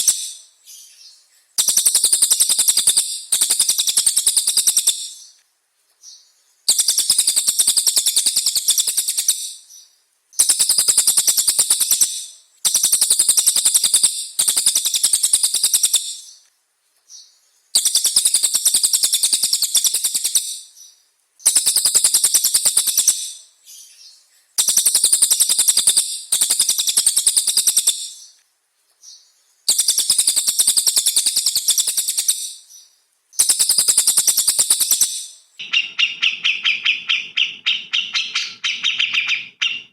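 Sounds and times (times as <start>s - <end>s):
songbird rapid high trills: 33.4s - 39.9s.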